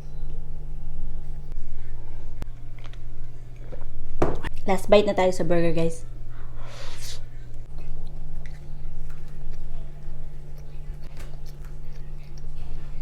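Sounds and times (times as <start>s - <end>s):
low hum: 0.0s - 13.0s
breathy hiss: 6.5s - 7.4s
person chewing food: 7.6s - 13.0s.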